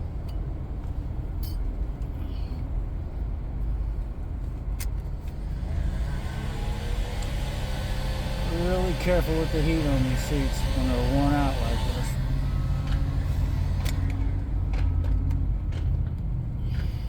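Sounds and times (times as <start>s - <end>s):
steady humming tone: 5.4s - 14.9s
heat gun blower rushing: 5.5s - 14.3s.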